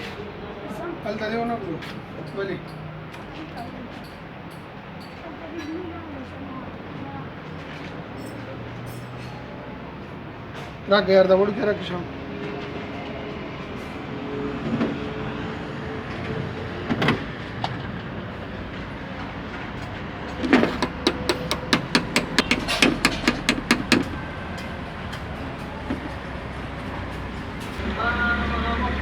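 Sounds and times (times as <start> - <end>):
quick sharp tool taps: 20.5 - 24.2
single knock: 20.6 - 24.2.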